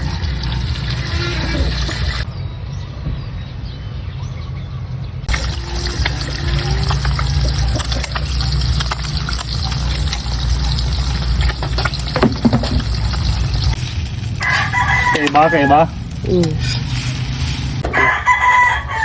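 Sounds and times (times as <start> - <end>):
water running: 0.0 - 2.3, 5.3 - 17.8.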